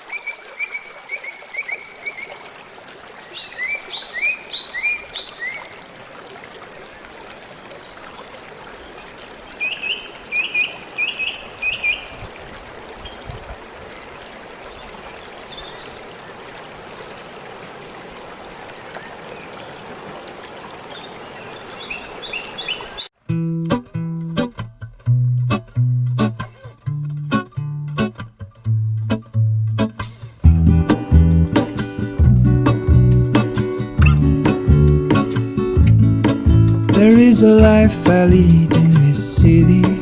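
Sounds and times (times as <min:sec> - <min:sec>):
stream running: 0:00.0 - 0:28.3, 0:30.0 - 0:40.0
bird chirping: 0:09.6 - 0:12.1, 0:20.4 - 0:23.1, 0:31.3 - 0:35.5.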